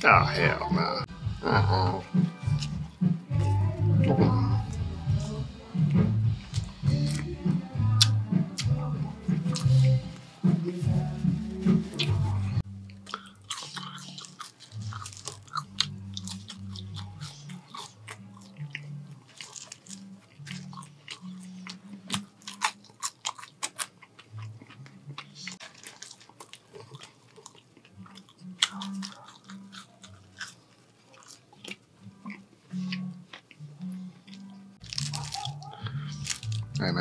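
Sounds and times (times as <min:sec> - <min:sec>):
party music bassline: 0:00.0 - 0:12.6
crunching and biting food: 0:11.9 - 0:37.0.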